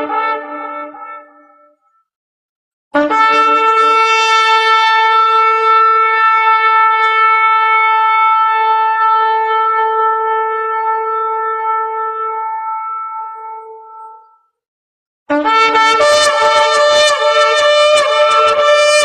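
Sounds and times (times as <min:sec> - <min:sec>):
shofar blast: 0:03.0 - 0:13.9, 0:15.3 - 0:19.0.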